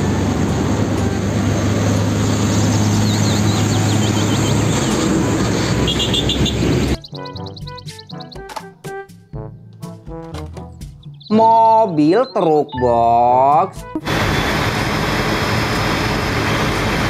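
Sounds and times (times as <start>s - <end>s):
truck diesel engine drone: 0.0s - 8.4s, 13.8s - 17.0s
tyre and road noise: 0.0s - 8.9s
brass music: 5.1s - 11.8s.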